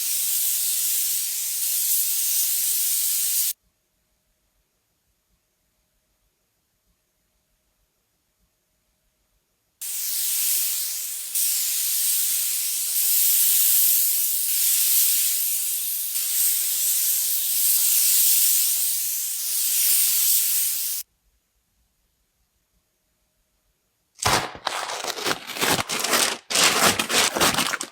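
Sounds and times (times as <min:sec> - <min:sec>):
compressed-air tool hissing: 0:00.0 - 0:03.6, 0:09.8 - 0:21.0.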